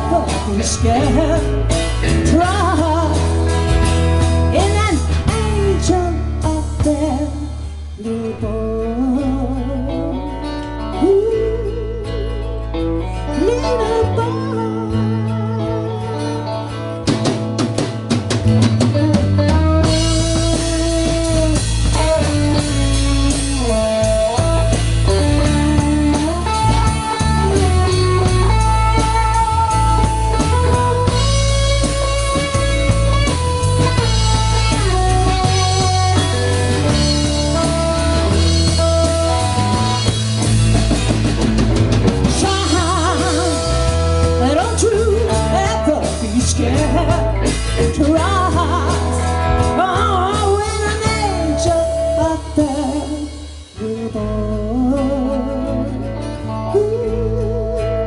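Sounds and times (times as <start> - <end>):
drum kit and cymbals: 0.0 - 8.1, 17.0 - 53.9
bass: 0.0 - 58.0
guitar: 0.0 - 58.0
lead melody in long notes: 0.0 - 58.0.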